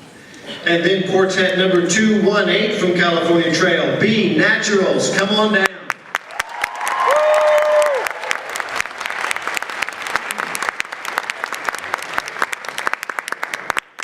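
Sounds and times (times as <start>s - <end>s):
audience applauding: 5.9s - 14.0s.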